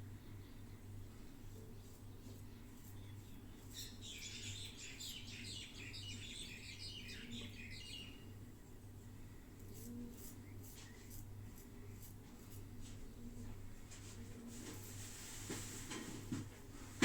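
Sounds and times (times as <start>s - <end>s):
low electrical hum: 0.0s - 17.0s
small bird twittering: 3.0s - 8.2s.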